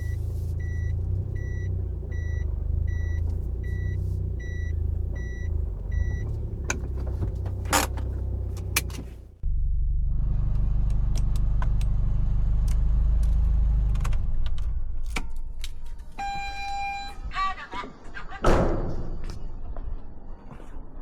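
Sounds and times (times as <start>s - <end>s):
car engine low rumble: 0.0s - 17.4s
sharp clicks and rattles: 4.4s - 9.2s.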